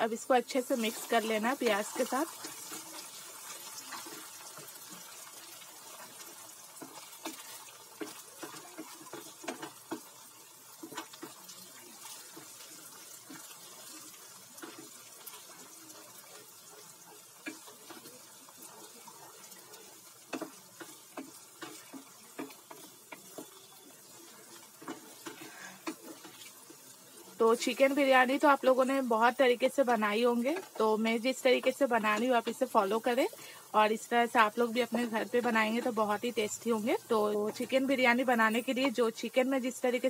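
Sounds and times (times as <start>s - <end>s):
sizzling in hot oil: 0.0s - 40.0s
wooden spatula scraping pot: 6.8s - 10.1s, 10.8s - 28.0s.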